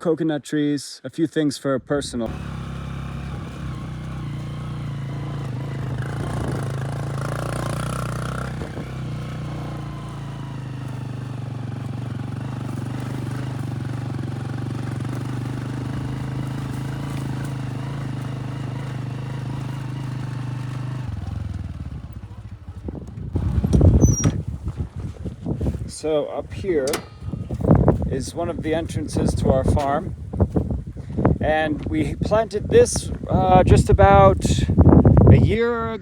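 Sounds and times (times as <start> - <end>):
vehicle engine running: 2.3 - 25.1.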